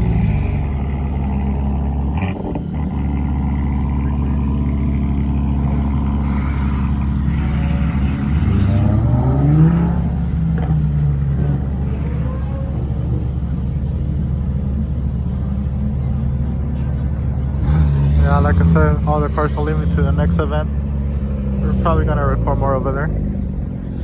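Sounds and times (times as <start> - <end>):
car engine running and revving: 0.0 - 24.0.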